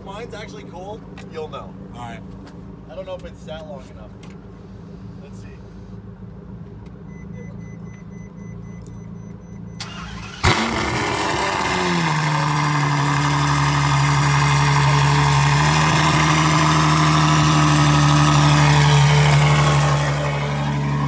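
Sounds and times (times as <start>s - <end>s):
car engine starting and idling: 0.0s - 21.0s.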